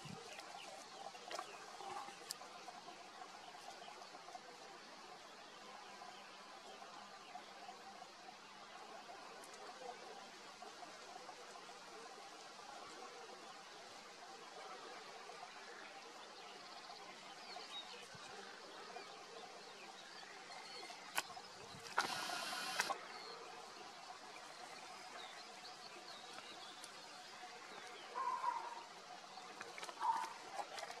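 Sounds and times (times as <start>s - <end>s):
outdoor background hiss: 0.0s - 30.7s
faint bird chirps: 27.8s - 29.2s.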